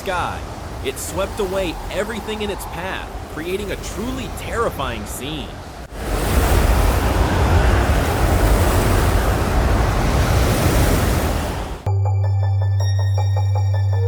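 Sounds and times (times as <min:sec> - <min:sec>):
wind and sea rushing: 0:00.0 - 0:11.9
wind buffeting microphone: 0:00.0 - 0:11.9
background music with low drone: 0:11.9 - 0:14.0.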